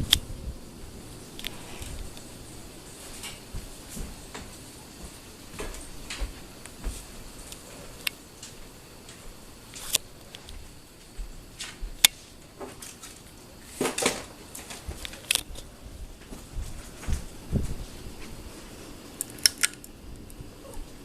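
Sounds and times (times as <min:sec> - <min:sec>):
ceiling fan running quietly: 0:00.0 - 0:21.0
low thuds: 0:15.8 - 0:18.4.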